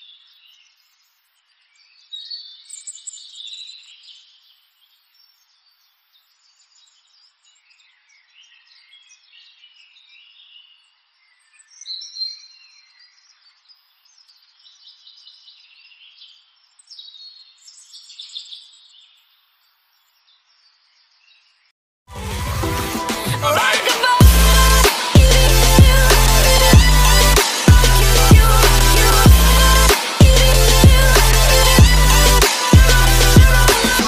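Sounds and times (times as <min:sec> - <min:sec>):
loud music: 0:22.1 - 0:34.0.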